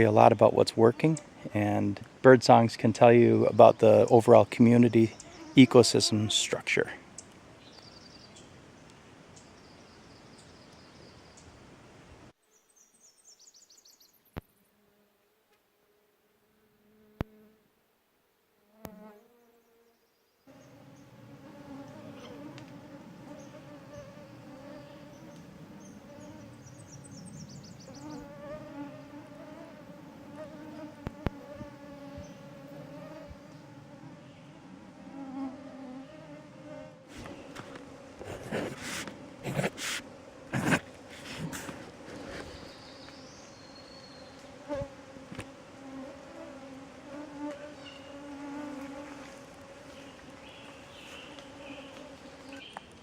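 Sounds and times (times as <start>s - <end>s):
flying insects buzzing: 0.0s - 11.5s, 12.6s - 17.8s, 18.5s - 53.0s
mosquitoes whining: 20.5s - 52.8s.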